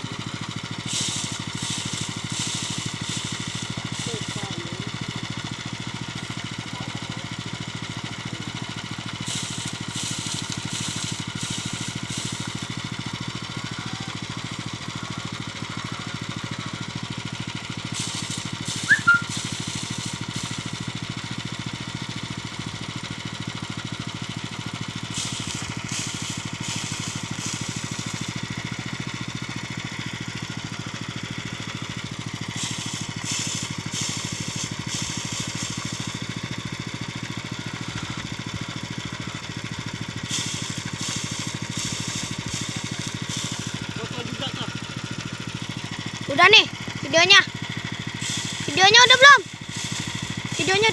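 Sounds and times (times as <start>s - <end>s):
rice thresher engine running: 0.0s - 50.9s
sharp squeak or clink: 18.9s - 19.3s.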